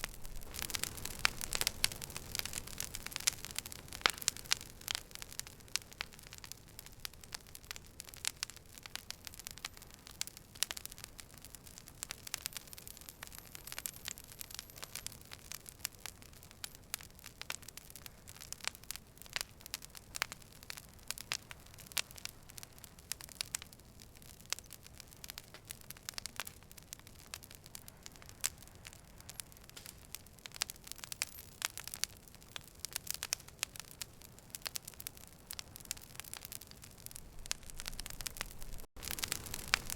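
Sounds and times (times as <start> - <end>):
low rush of flame: 0.0 - 23.2, 32.9 - 39.9
campfire crackling and popping: 0.0 - 39.9.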